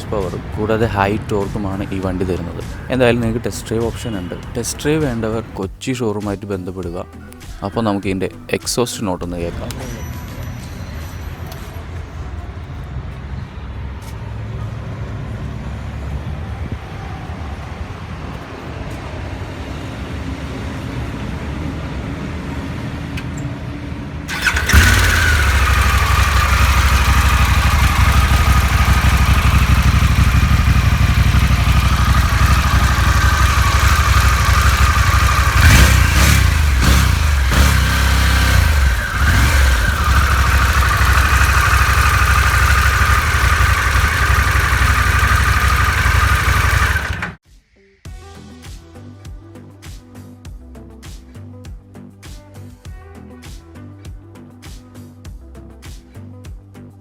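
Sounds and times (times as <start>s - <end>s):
motorcycle engine rumbling and revving: 0.0s - 5.6s, 24.3s - 47.4s.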